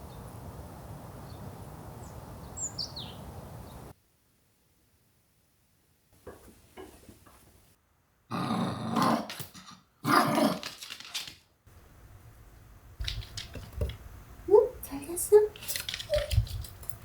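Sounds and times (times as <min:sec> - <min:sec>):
dog growling: 0:08.3 - 0:10.7.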